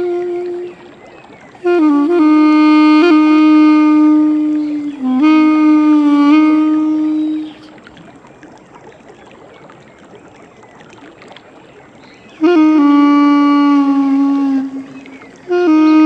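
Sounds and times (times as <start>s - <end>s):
duduk playing held notes: 0.0s - 7.8s, 12.4s - 16.0s
faint background hiss: 0.0s - 16.0s.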